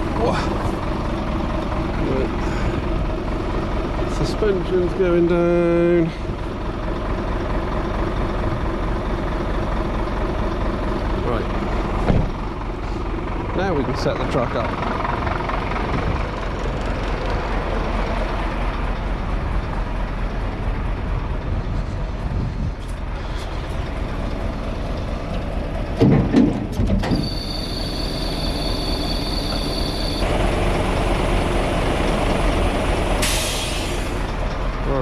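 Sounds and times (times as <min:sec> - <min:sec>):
truck engine idling: 0:00.0 - 0:35.0
loud metallic knocks: 0:26.0 - 0:27.2
high-pitched tone: 0:27.2 - 0:30.2.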